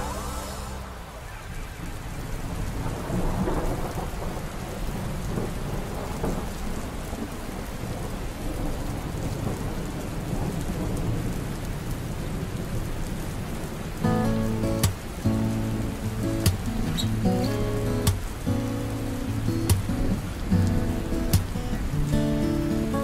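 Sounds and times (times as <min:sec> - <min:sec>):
rolling thunder: 0:00.0 - 0:12.8
steady rain: 0:00.0 - 0:23.0.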